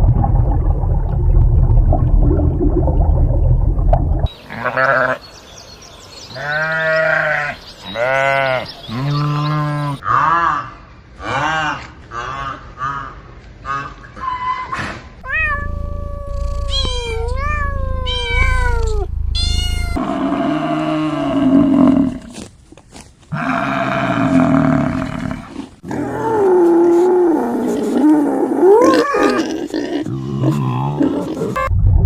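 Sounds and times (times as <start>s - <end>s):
animal calling: 6.4s - 22.2s.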